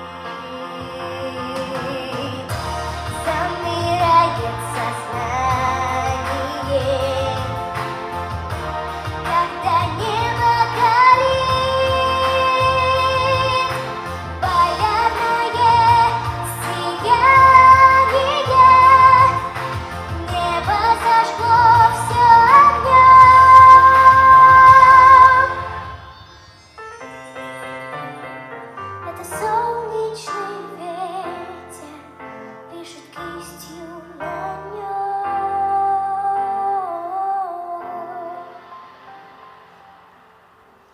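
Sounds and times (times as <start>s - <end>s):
woman singing pop song: 0.0s - 26.0s, 27.8s - 38.8s
instrumental accompaniment: 0.0s - 32.2s.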